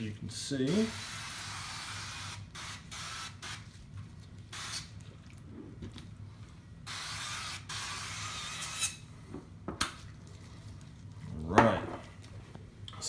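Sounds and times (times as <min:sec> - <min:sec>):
aerosol cooking spray hissing: 0:00.7 - 0:03.6.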